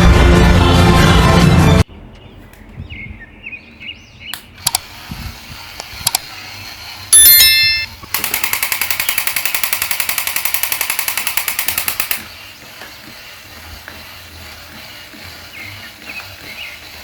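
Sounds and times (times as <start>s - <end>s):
rapid rattle of sharp clicks: 7.2s - 13.2s.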